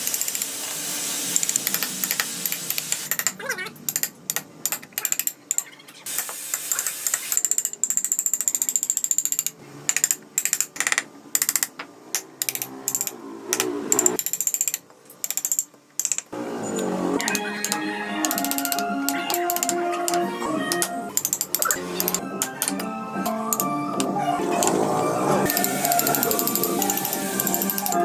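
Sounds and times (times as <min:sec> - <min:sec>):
hand tools clicking on wood: 0:00.0 - 0:00.6, 0:01.4 - 0:24.8, 0:25.5 - 0:28.0
faint music: 0:16.3 - 0:28.0.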